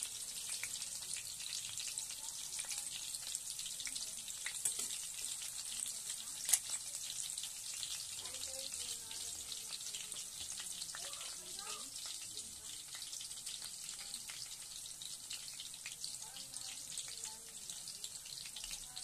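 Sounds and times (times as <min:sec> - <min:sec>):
garlic sizzling in hot oil: 0:00.0 - 0:19.0
spatula stirring: 0:04.4 - 0:05.6.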